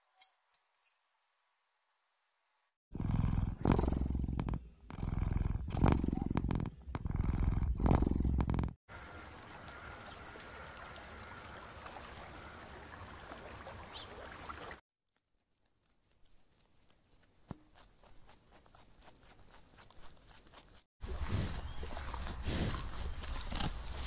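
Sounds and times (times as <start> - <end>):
rabbits nibbling leaves: 15.1 - 24.0.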